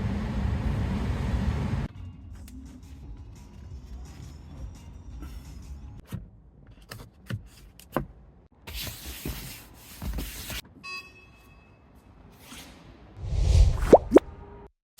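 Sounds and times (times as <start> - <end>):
brief beep: 10.8 - 11.7.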